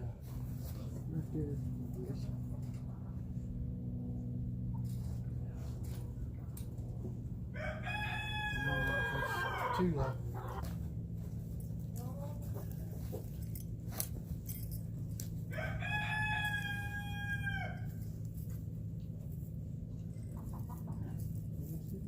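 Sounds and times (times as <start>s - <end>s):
steady low hum: 0.0s - 22.0s
rooster crowing: 7.5s - 10.6s, 15.5s - 18.0s.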